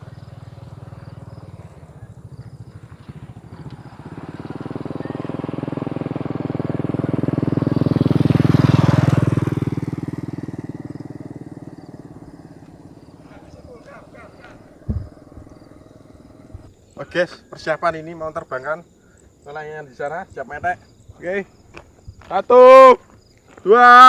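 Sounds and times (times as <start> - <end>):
passing vehicle engine: 0.0 - 16.7.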